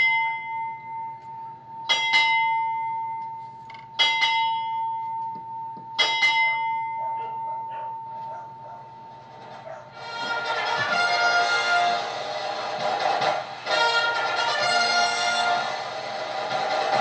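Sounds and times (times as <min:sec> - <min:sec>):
ship's bell double strikes: 0:01.8 - 0:03.3, 0:04.0 - 0:07.7.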